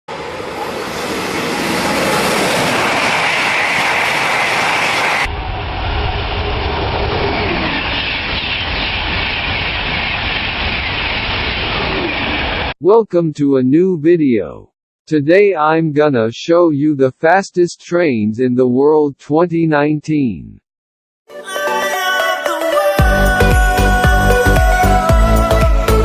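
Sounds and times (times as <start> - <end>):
deep train rumble: 0.1 - 12.7
train running on rails: 0.1 - 12.7.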